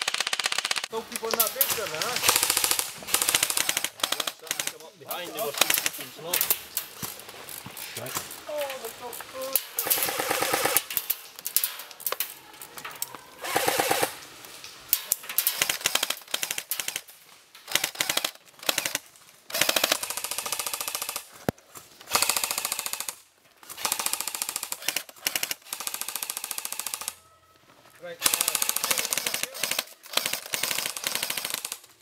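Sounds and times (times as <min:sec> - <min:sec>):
airsoft guns firing bursts: 0:00.0 - 0:06.1, 0:09.7 - 0:11.1, 0:13.4 - 0:14.2, 0:15.4 - 0:17.1, 0:17.7 - 0:21.3, 0:22.1 - 0:23.2, 0:23.8 - 0:27.2, 0:28.2 - 0:32.0.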